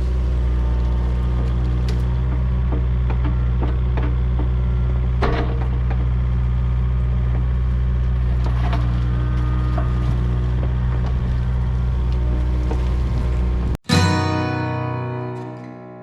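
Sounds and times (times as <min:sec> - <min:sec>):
diesel engine running: 0:00.0 - 0:15.0
wood and brush breaking: 0:07.2 - 0:13.8.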